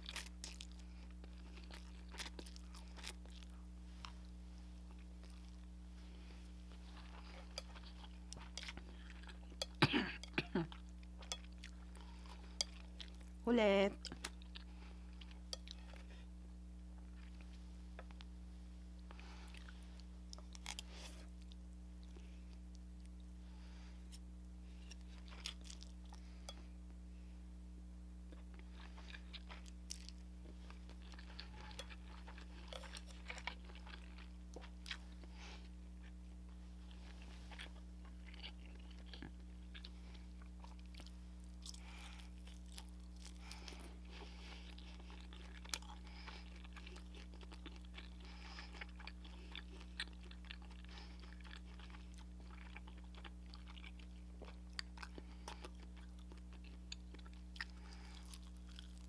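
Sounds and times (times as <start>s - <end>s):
steady low hum: 0.0s - 59.0s
crunchy chewing: 24.8s - 26.3s, 28.3s - 36.2s, 36.8s - 59.0s.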